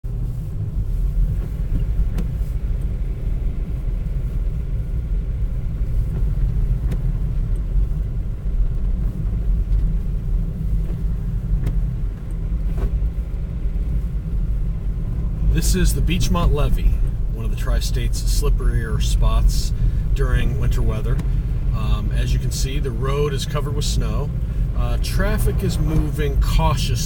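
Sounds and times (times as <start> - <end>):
road and engine rumble: 0.0 - 27.0.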